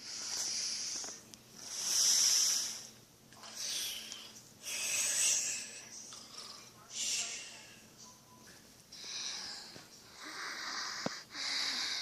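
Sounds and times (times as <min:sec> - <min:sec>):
person exhaling with breathy hiss: 0:00.0 - 0:02.9.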